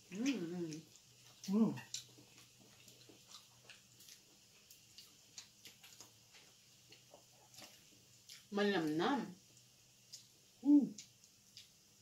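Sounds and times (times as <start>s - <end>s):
low steady hum: 0.0s - 12.0s
chewing clicks and lip smacks: 0.1s - 8.5s, 11.0s - 11.8s.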